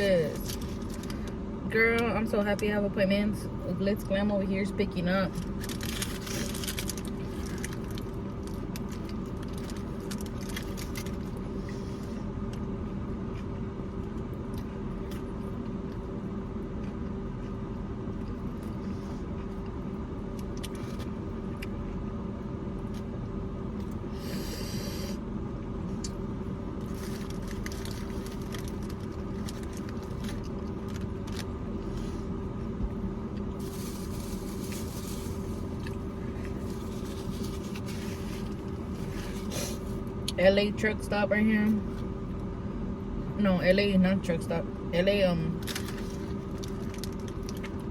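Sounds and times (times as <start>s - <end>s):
low mechanical hum: 0.0s - 47.9s
chewing with wet clicks: 13.3s - 18.8s.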